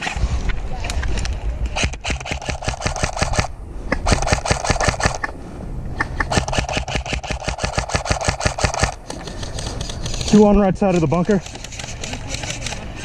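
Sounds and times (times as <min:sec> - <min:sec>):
airsoft gun firing full-auto: 0:01.8 - 0:03.5, 0:04.1 - 0:05.2, 0:06.3 - 0:09.0.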